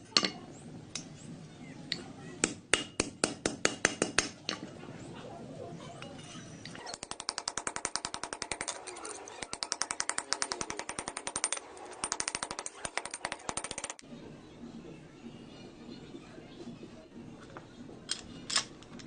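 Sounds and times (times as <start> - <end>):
rapid even clicking: 6.7 - 14.0.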